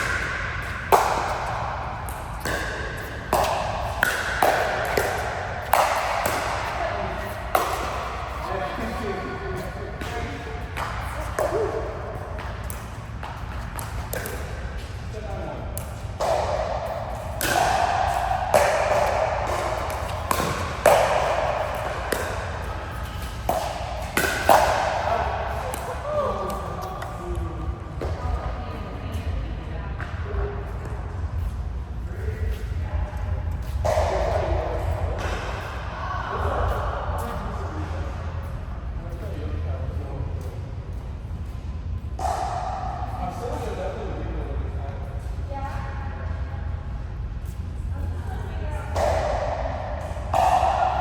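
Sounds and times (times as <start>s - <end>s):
sharp ball strikes: 0.0s - 28.4s, 33.6s - 36.8s, 42.2s - 43.8s, 48.9s - 51.0s.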